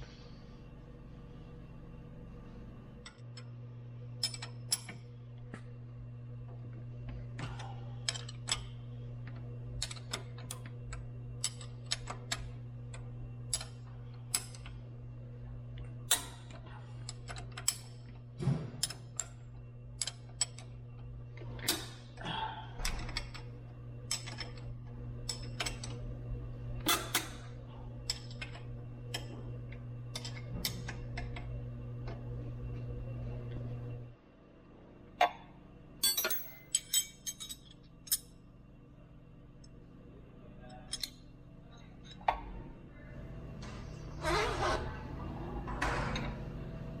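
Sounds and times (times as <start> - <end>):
steady low hum: 0.0 - 47.0
hand tools clinking: 36.0 - 38.2.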